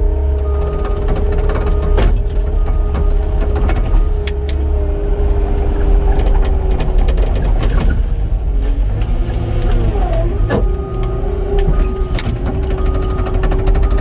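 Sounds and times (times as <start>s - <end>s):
diesel engine running: 0.0s - 14.0s
hydraulic whine: 8.7s - 14.0s.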